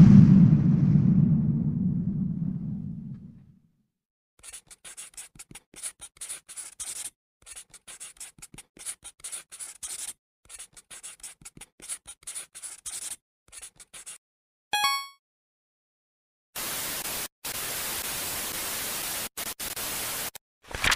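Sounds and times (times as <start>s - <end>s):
pencil writing on paper: 4.4s - 14.2s.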